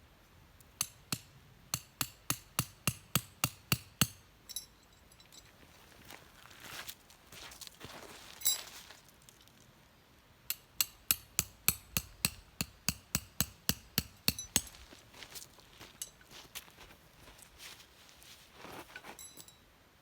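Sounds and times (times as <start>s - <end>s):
ringing clink: 4.4s - 5.6s, 19.1s - 19.6s.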